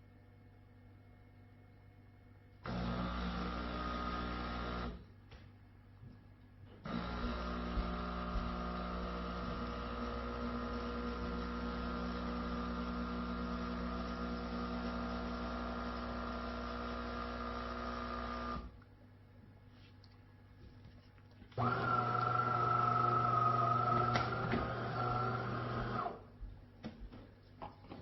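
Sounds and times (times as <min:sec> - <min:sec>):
espresso machine motor humming: 0:02.6 - 0:05.0, 0:06.8 - 0:18.8, 0:21.6 - 0:26.2.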